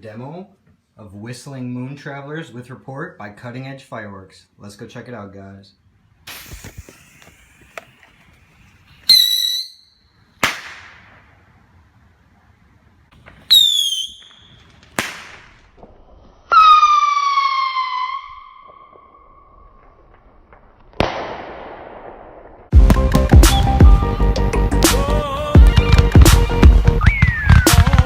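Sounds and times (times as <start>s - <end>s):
firework bang: 6.3s - 9.7s, 10.4s - 11.3s, 13.5s - 17.0s, 17.9s - 23.5s, 27.0s - 28.0s
firework whistles: 6.3s - 11.2s, 13.4s - 15.4s, 16.4s - 20.5s, 27.0s - 28.0s
sharp crack: 6.3s - 11.5s, 13.1s - 17.0s, 18.3s - 23.8s, 24.8s - 28.0s.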